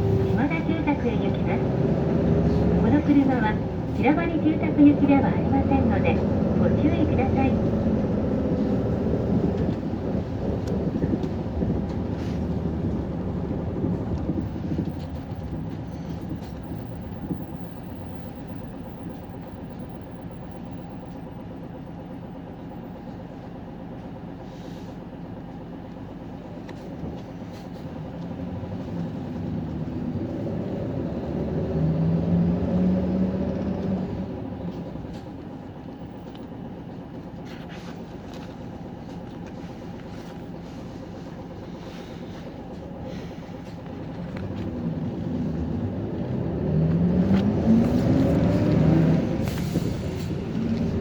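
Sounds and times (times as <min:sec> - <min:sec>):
bus engine: 0:00.0 - 0:51.0
road noise: 0:00.0 - 0:51.0.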